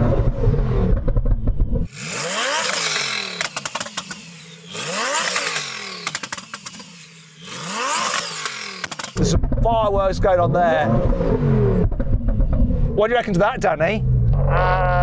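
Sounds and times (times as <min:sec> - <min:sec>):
car engine revving: 0:00.0 - 0:15.0
crackling exhaust pops: 0:08.1 - 0:10.0, 0:11.8 - 0:12.8.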